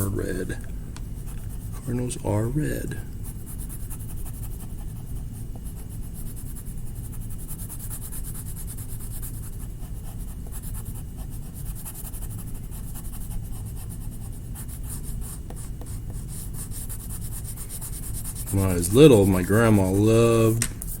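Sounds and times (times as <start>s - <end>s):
steady low hum: 0.0s - 21.0s
colouring tool rubbing on paper: 6.0s - 21.0s.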